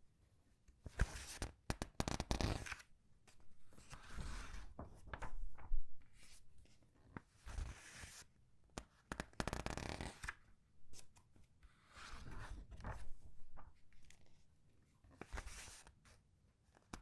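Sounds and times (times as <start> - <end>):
paper pages rustling: 12.2 - 14.2.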